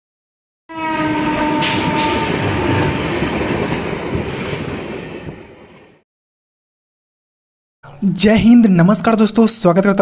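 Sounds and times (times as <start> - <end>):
train horn: 0.7 - 3.1
passing train rumble: 0.7 - 6.0.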